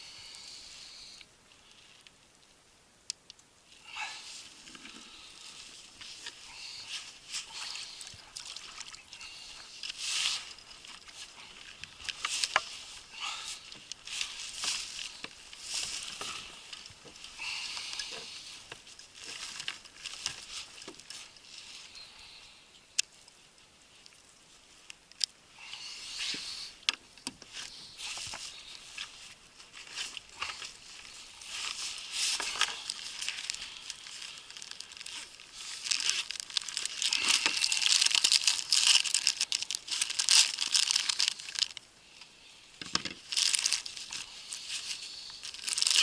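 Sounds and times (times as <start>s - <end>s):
water splashes and drips: 7.4s - 12.9s.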